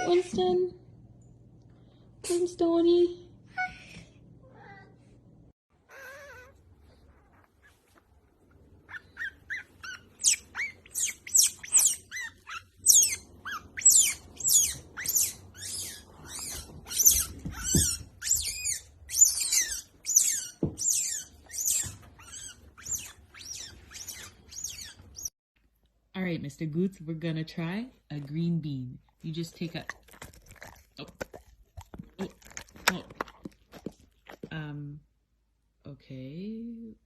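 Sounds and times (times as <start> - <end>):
small animal high-pitched chirps: 8.9 - 25.3.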